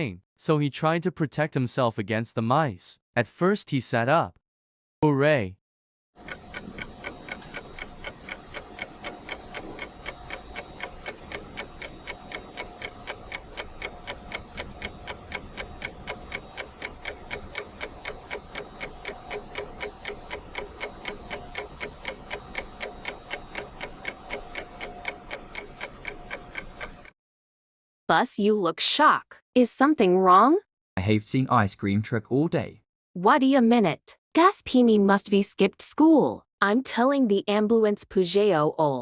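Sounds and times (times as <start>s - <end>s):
clock ticking fast: 6.2s - 27.1s
faint hum: 6.2s - 27.1s.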